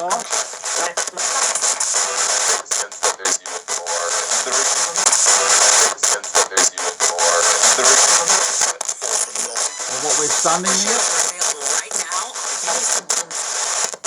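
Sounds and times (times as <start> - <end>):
radio static and broadcast snatches: 0.0 - 14.0.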